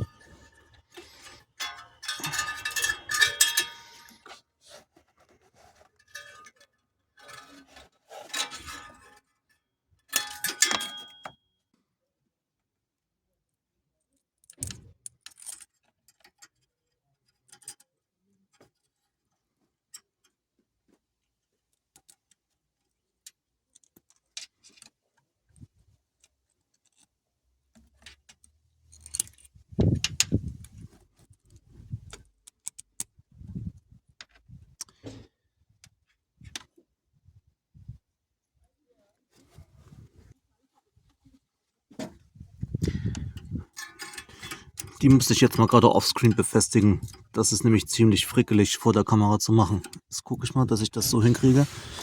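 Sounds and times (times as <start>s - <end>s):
metallic ring: 0.0s - 4.3s, 10.1s - 11.4s
metal clatter: 0.0s - 4.4s, 5.7s - 9.3s, 10.1s - 11.3s, 42.9s - 47.6s
sheet metal clinking and jangling: 0.0s - 4.4s, 7.2s - 9.2s, 10.1s - 11.3s, 42.9s - 47.6s.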